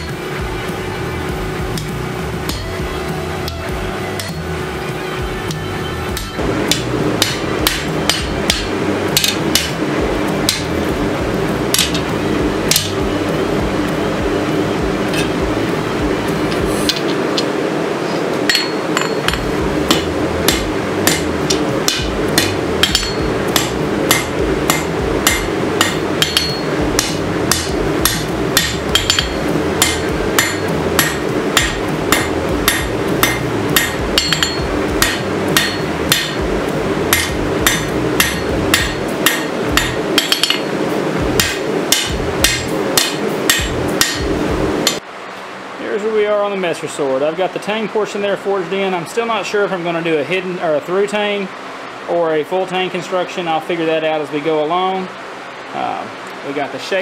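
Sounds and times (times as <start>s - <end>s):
steady low hum: 0.0s - 57.0s
hammer ringing on anvil: 6.1s - 9.8s, 12.7s - 13.0s, 18.5s - 36.4s, 37.1s - 40.7s, 41.4s - 45.0s.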